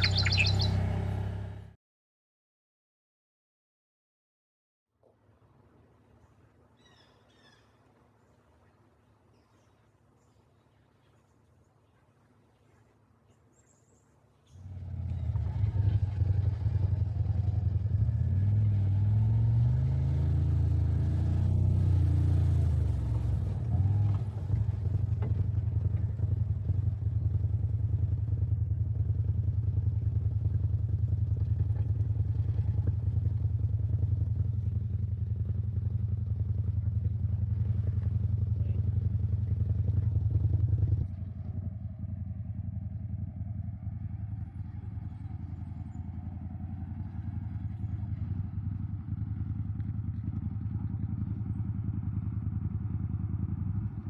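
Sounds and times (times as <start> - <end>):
off-road vehicle engine revving: 0.0 - 1.8, 14.6 - 27.3.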